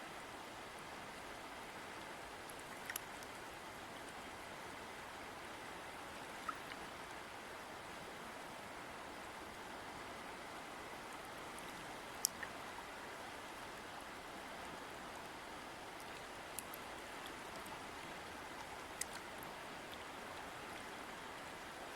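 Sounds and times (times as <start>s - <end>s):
water splashes: 15.9s - 21.6s.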